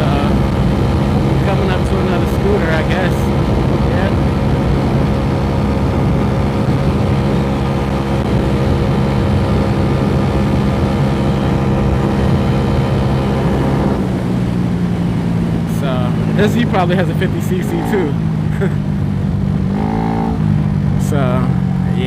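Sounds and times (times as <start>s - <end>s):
wind on microphone: 0.0s - 15.6s
scooter engine at high revs: 0.0s - 22.0s.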